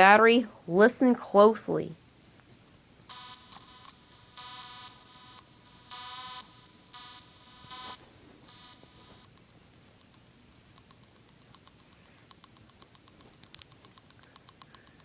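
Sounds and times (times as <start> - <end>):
toy speaker buzzing tones: 3.1 - 9.3.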